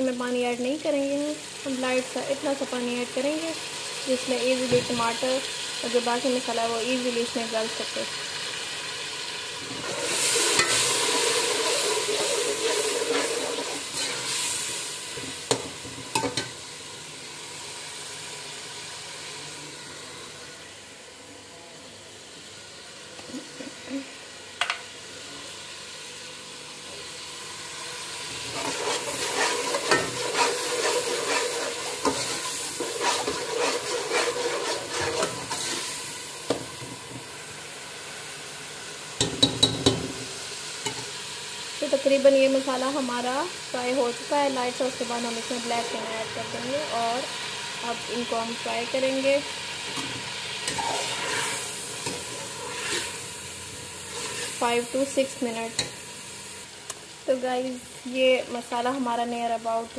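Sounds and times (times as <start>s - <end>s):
masala sizzling in oil: 0.0s - 59.9s
steel spoon scraping pot: 28.5s - 35.9s, 50.7s - 53.2s.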